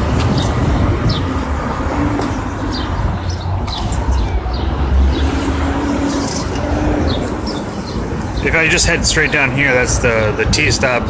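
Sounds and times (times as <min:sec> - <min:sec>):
low rumble of traffic: 0:00.0 - 0:11.0
small birds chirping: 0:02.2 - 0:09.6.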